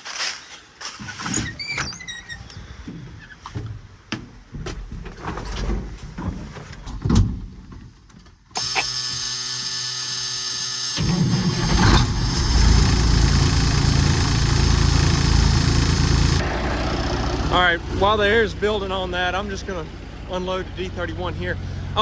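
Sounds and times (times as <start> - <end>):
starter motor cranking: 8.6 - 17.8
diesel engine running: 10.6 - 22.0.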